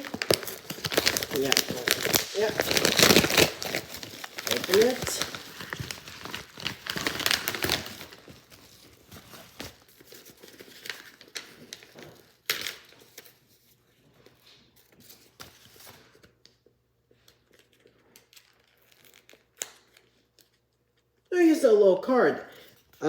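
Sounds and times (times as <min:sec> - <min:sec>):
packaging crinkling and tearing: 0:00.0 - 0:13.7, 0:17.2 - 0:21.3.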